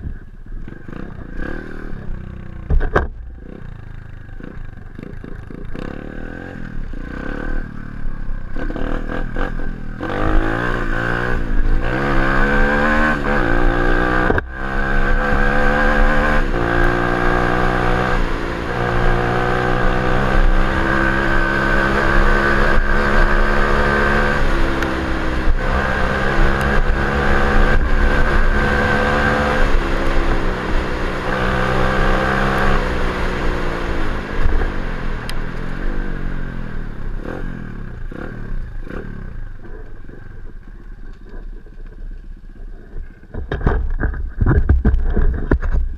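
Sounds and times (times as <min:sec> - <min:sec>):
dirt bike engine revving: 0:00.7 - 0:36.5, 0:37.1 - 0:39.4
wind rumble on microphone: 0:39.5 - 0:45.9.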